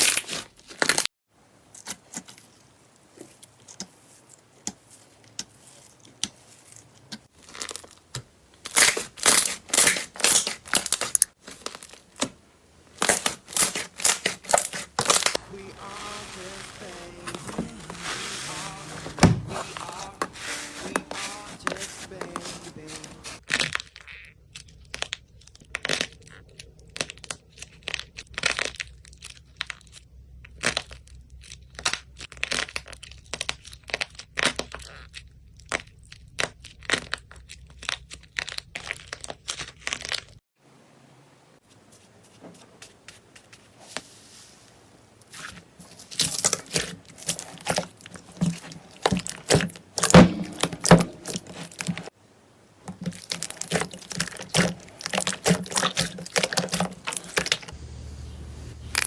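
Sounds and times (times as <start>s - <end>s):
slime crackling and popping: 4.6s - 18.3s, 45.3s - 52.2s, 52.8s - 57.8s.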